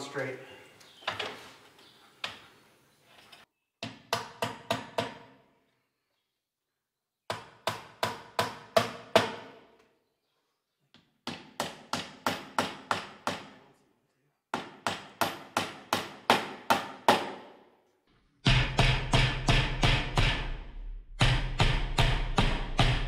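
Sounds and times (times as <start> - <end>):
hammer driving nails: 3.8 - 5.4, 7.3 - 9.8, 11.0 - 13.7, 14.5 - 17.5, 18.4 - 23.0.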